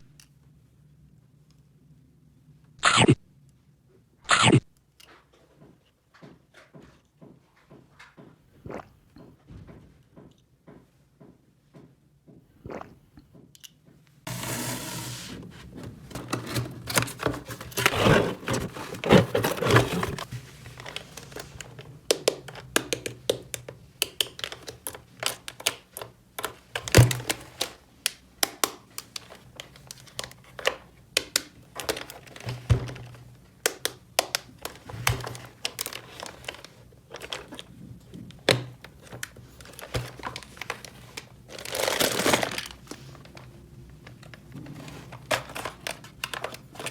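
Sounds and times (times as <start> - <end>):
rustling and crinkling: 14.3 - 22.7, 31.7 - 46.9.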